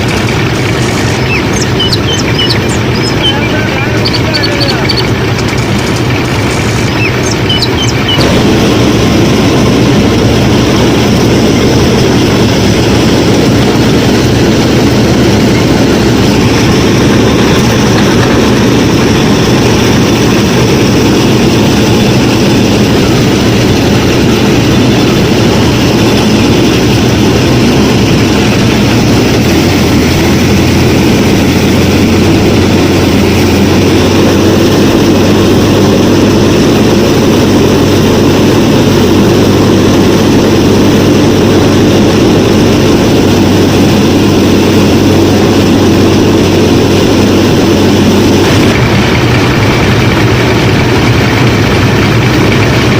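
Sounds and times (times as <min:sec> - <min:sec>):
harvester motor droning: 0:00.0 - 0:52.9
birds chirping: 0:00.1 - 0:08.4.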